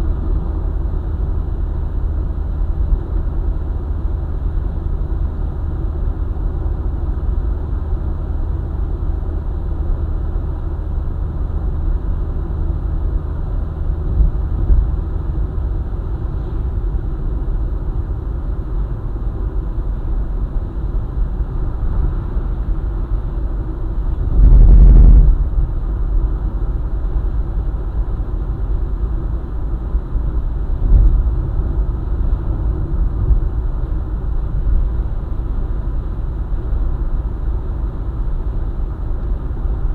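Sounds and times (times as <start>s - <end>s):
car driving on highway: 0.0s - 39.9s.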